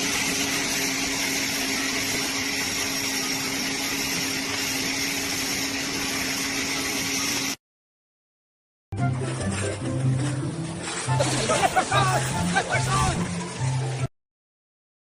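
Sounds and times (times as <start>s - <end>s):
hiss: 0.0s - 7.6s.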